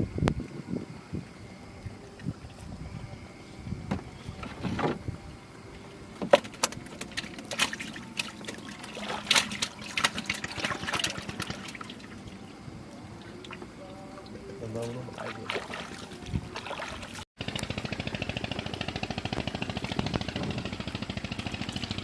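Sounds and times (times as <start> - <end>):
knocks and clatter on boat: 3.8 - 5.1, 6.2 - 8.6
water splashing and trickling: 5.6 - 22.0.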